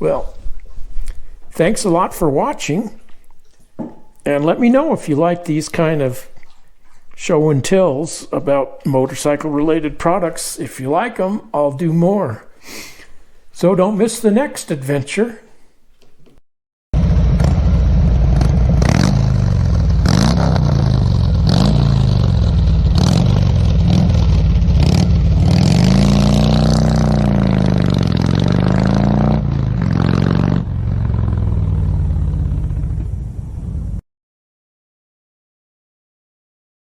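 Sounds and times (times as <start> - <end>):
vehicle engine revving: 17.0 - 34.0.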